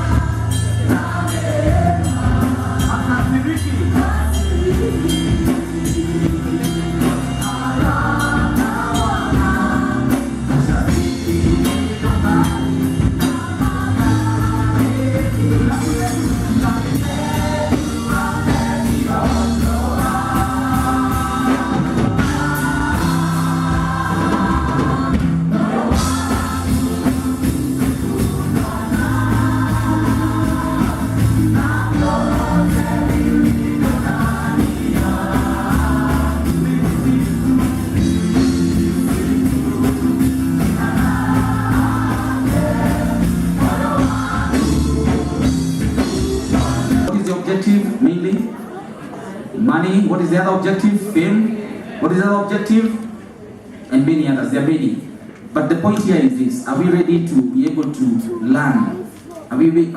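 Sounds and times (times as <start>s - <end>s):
voices singing together: 0.0s - 47.4s
gospel band with drums: 0.0s - 49.5s.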